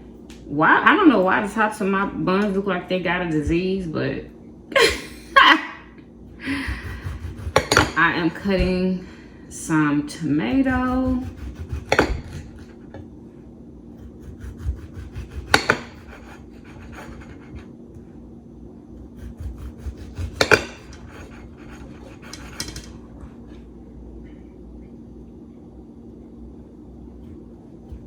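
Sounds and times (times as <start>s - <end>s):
knife slicing a tomato: 14.0s - 16.4s, 19.2s - 22.8s.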